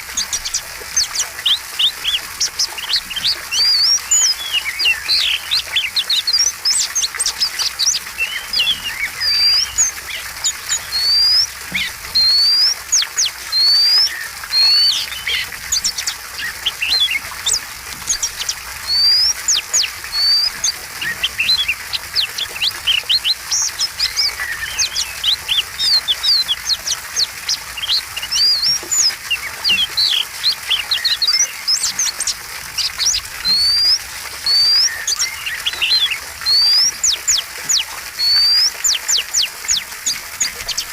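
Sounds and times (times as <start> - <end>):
songbird whistling song: 0.0 - 40.9.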